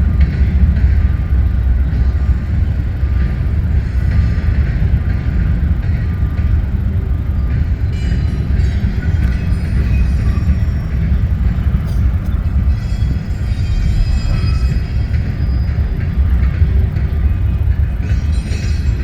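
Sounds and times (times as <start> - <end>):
train rumbling past: 0.0 - 19.0
high-pitched squeals: 8.0 - 19.0.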